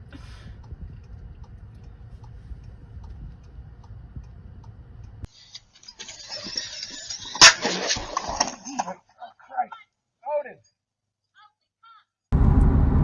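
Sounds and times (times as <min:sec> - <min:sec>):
low steady rumble: 0:00.0 - 0:05.3, 0:12.3 - 0:13.0
faint ticking: 0:00.1 - 0:05.8.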